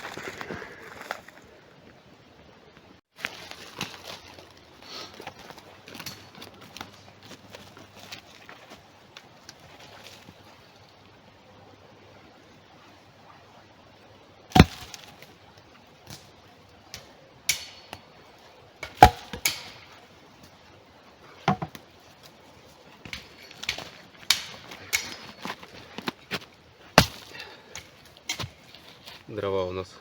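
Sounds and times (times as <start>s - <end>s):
axe chopping wood: 14.5s - 15.1s, 18.8s - 19.9s, 21.5s - 21.8s, 23.1s - 26.1s, 27.0s - 28.6s
wood knocking and cracking: 21.4s - 21.9s.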